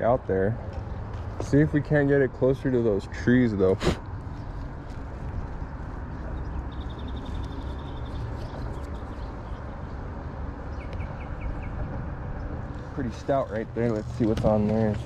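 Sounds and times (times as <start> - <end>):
low outdoor rumble: 0.0 - 15.0
bird trilling and chirping: 6.4 - 10.0.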